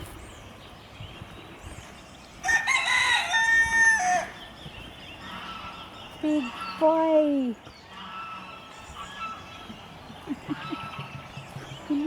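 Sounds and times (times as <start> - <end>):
rooster crowing: 2.4 - 4.4.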